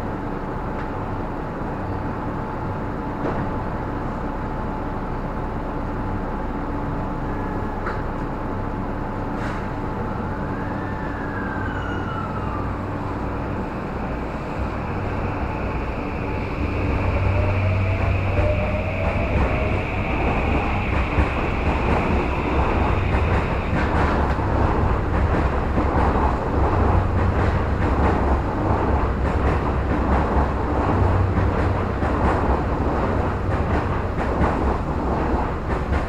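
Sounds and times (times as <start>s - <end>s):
train rumbling from inside: 0.0s - 36.0s
rising whine: 10.6s - 24.0s.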